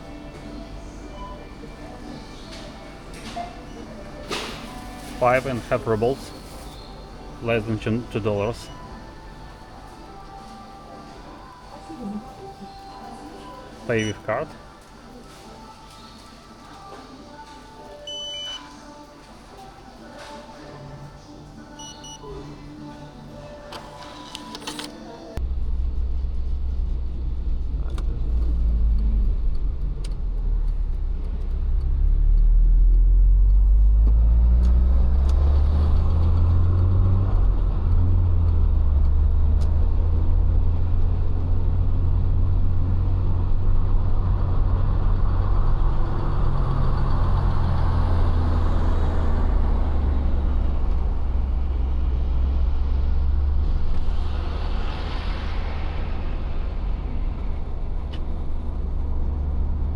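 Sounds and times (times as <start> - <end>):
car engine and road rumble: 25.4 - 59.9.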